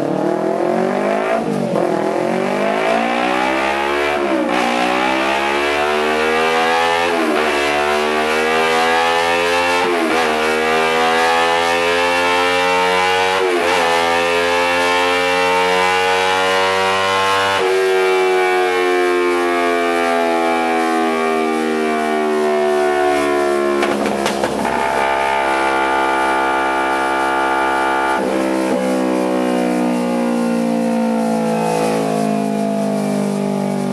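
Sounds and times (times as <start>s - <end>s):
motorcycle engine at high revs: 0.0s - 18.9s, 23.6s - 29.1s.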